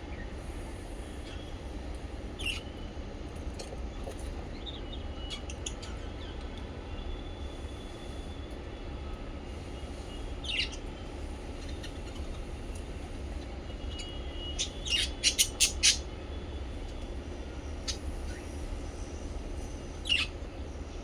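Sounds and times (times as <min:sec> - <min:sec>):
small parrots chirping: 0:14.0 - 0:16.0.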